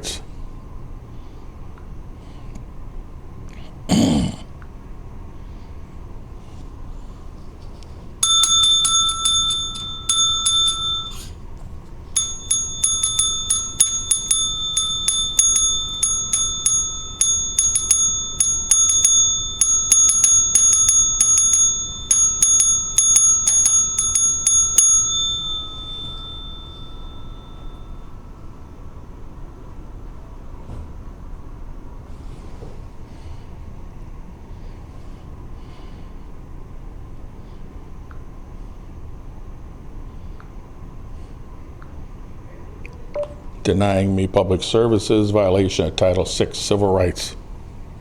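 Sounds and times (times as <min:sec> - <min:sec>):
service bell dinging: 0:08.2 - 0:11.4, 0:12.2 - 0:28.9, 0:43.2 - 0:43.5.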